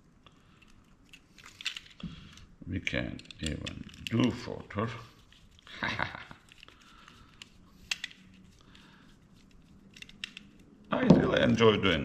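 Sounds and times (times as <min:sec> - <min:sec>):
plastic and metal parts clicking: 0:00.4 - 0:04.5, 0:06.4 - 0:10.9.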